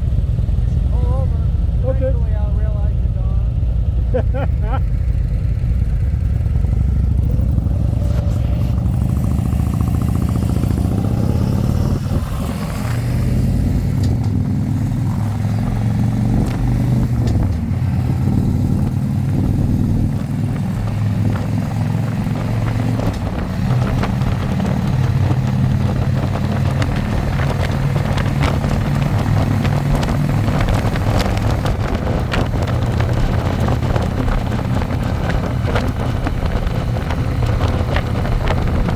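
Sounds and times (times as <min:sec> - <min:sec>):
motorcycle engine rumbling: 0:00.0 - 0:38.9.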